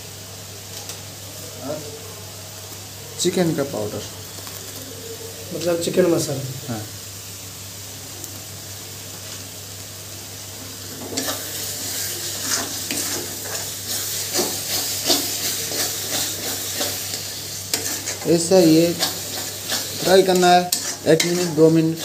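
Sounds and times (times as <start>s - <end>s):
masala sizzling in a pan: 0.0s - 22.0s
metal spoon scraping a pan: 11.0s - 22.0s.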